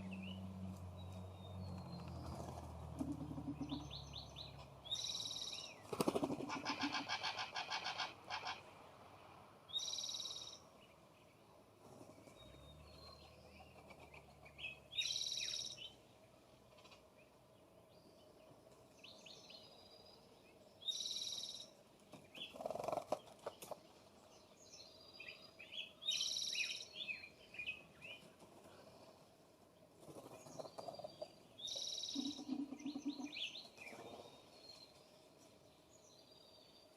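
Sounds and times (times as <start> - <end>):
fast rattling bird call: 4.9 - 8.6, 22.4 - 23.5.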